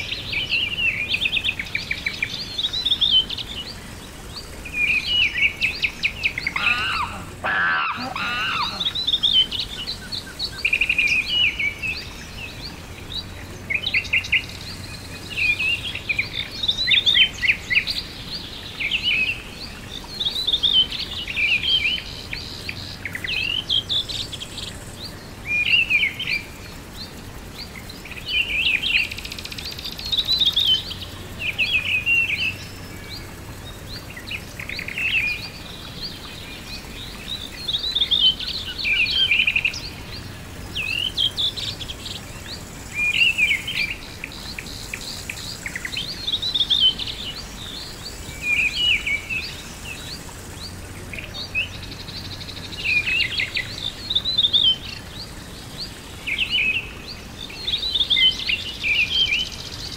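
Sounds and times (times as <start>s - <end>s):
songbirds singing and chirping: 0.0s - 59.9s
lower warbling bird call: 4.4s - 26.6s.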